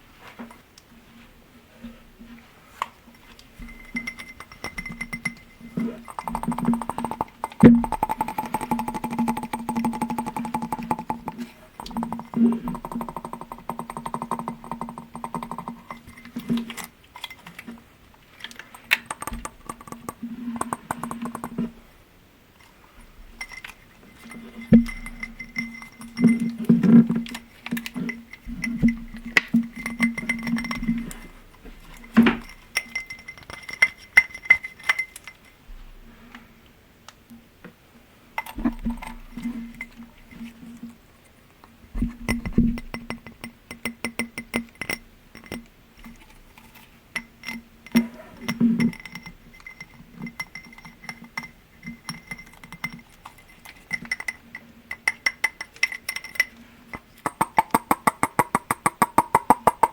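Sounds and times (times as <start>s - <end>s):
glasses tapped ringing: 3.6s - 16.4s, 18.8s - 21.6s, 23.4s - 26.9s, 27.8s - 31.2s.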